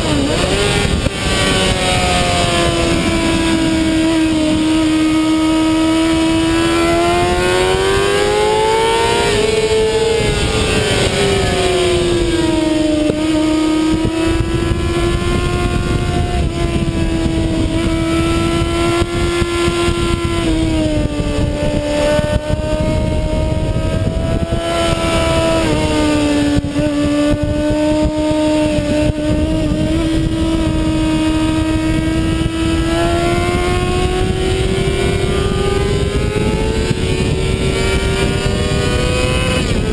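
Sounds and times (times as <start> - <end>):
motorcycle engine revving: 0.0 - 39.9
wind noise rushing: 0.0 - 39.9.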